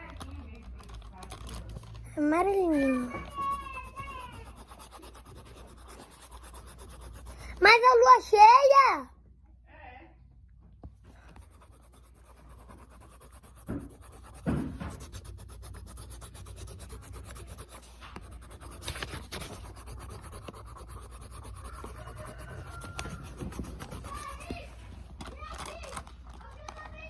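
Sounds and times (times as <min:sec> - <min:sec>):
pencil scribbling on paper: 0:00.0 - 0:09.0, 0:11.2 - 0:25.1
knocks: 0:13.6 - 0:15.1.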